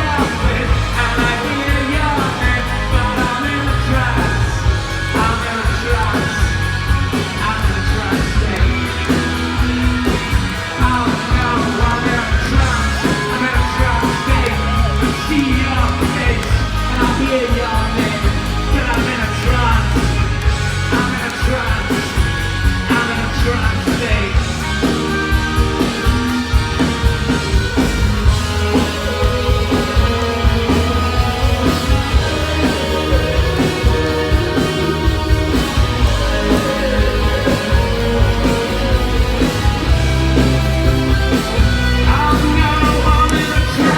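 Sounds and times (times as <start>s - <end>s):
live rock band playing: 0.0s - 43.9s
drum beat: 24.4s - 43.9s
person singing: 28.6s - 43.9s.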